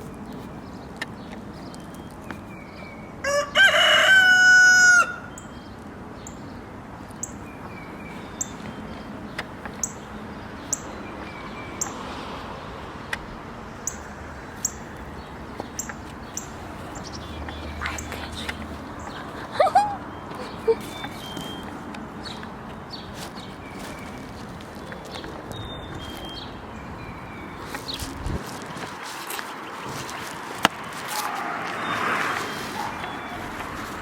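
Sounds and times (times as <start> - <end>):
rooster crowing: 3.2 - 5.4
small bird chirping: 7.2 - 11.0, 13.8 - 28.4.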